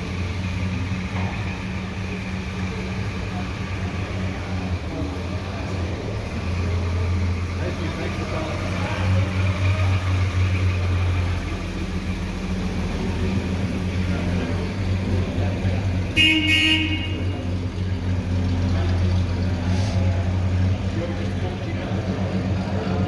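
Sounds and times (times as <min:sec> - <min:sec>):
vehicle engine running: 0:00.0 - 0:23.0
car horn toot: 0:16.1 - 0:17.7.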